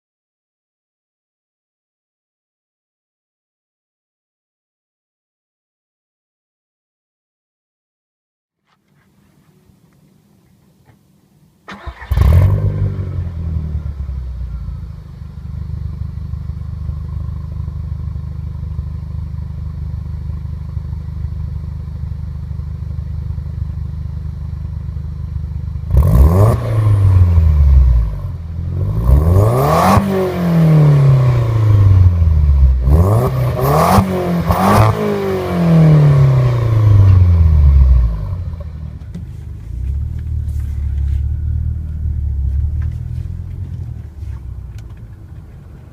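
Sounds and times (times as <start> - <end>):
car engine idling and revving: 11.8 - 45.9.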